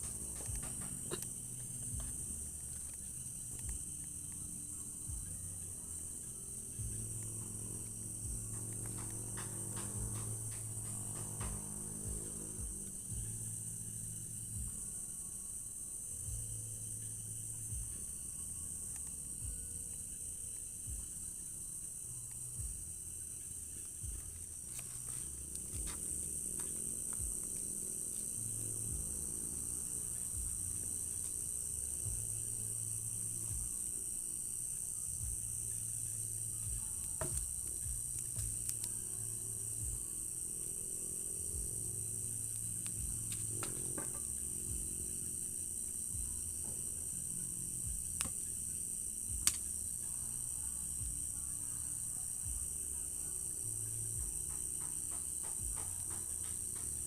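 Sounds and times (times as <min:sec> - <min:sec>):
cricket chorus chirring: 0:00.0 - 0:57.0
distant music bass notes: 0:00.0 - 0:57.0
faint low sustained tones: 0:00.0 - 0:57.0
low hum: 0:00.0 - 0:57.0
sharp clicks: 0:49.4 - 0:49.7.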